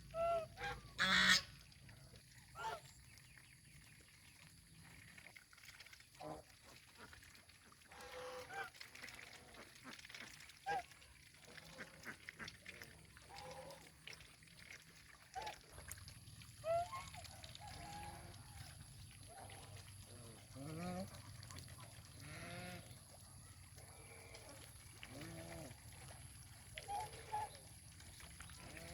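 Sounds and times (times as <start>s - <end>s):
farm animals calling: 0.0s - 1.5s.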